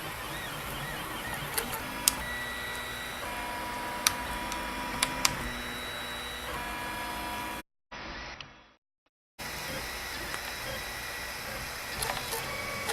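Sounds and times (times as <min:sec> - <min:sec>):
sharp printer clicks: 0:00.0 - 0:06.8, 0:10.0 - 0:12.9
printer stepper motors whining: 0:00.0 - 0:07.6, 0:09.4 - 0:12.9.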